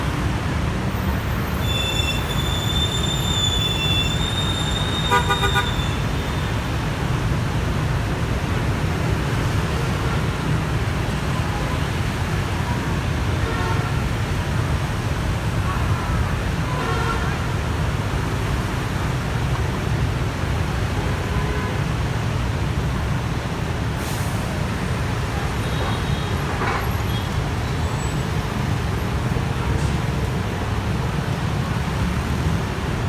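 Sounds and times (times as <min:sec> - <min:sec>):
rumble of vehicle engines: 0:00.0 - 0:33.0
short horn honk: 0:04.0 - 0:06.0.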